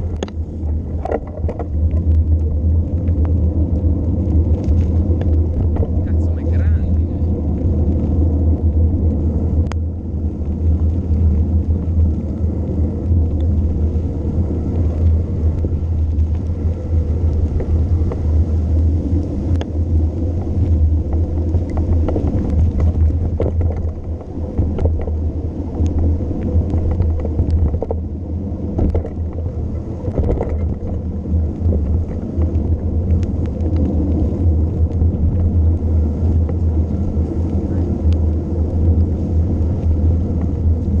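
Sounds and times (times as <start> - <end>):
bike clicks and knocks: 0.0 - 3.4, 4.5 - 6.0, 19.1 - 35.6
wind rumble on microphone: 0.0 - 41.0.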